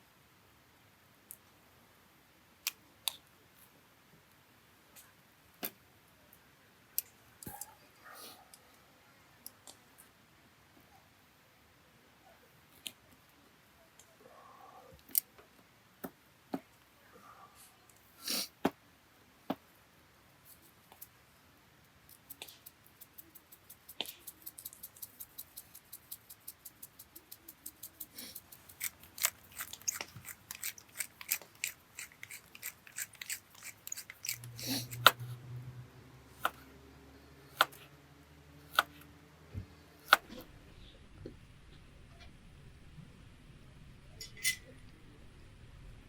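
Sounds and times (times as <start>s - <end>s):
blade cutting clicks: 38.7s - 39.0s.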